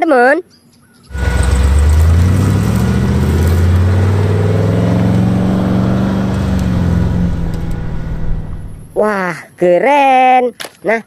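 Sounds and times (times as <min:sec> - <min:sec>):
car engine accelerating: 0:01.1 - 0:09.2.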